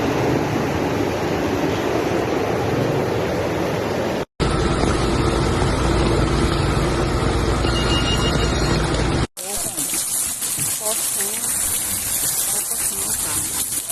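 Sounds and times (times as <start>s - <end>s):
heavy rain: 9.4s - 13.9s
rushing runoff water: 9.4s - 13.9s.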